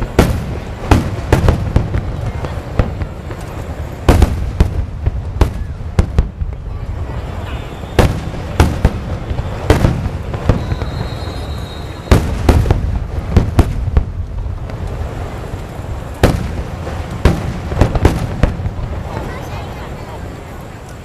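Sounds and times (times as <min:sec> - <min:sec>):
fireworks sharp bangs: 0:00.0 - 0:21.0
low rumble of bursting shells: 0:07.8 - 0:19.3.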